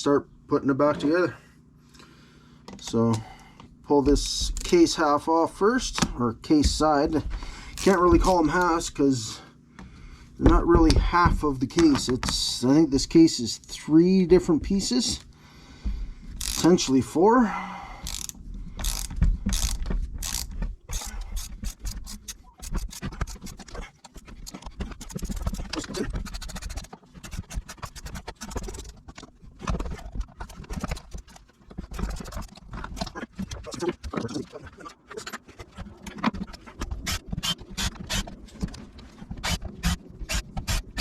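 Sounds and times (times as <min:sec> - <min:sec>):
ratchet wrench clicking: 0:16.4 - 0:16.7, 0:18.0 - 0:23.0.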